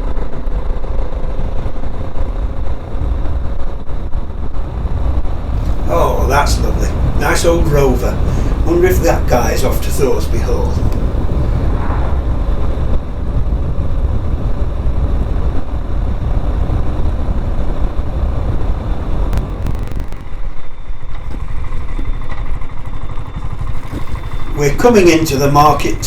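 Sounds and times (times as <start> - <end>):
wind noise on microphone: 0.0 - 26.0
single-cylinder motorcycle engine running: 21.2 - 26.0.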